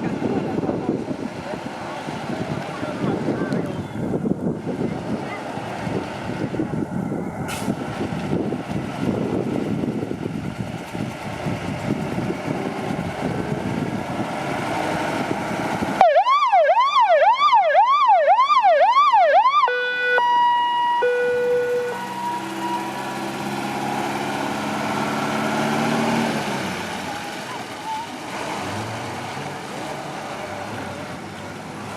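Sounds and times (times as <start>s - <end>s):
wind on microphone: 0.0s - 16.0s
truck engines rumbling: 0.0s - 31.9s
fire truck siren wailing: 14.8s - 28.2s
horn blasts: 19.7s - 23.1s.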